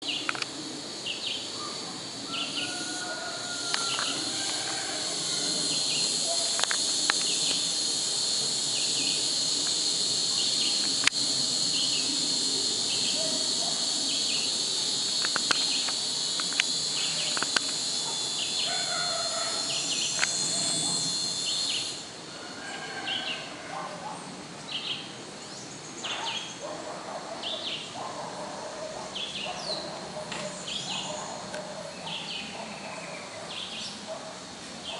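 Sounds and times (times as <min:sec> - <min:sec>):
bird calls: 0:00.0 - 0:22.1, 0:22.7 - 0:34.2
short insect chirps: 0:00.0 - 0:22.2
insects droning: 0:00.0 - 0:34.9.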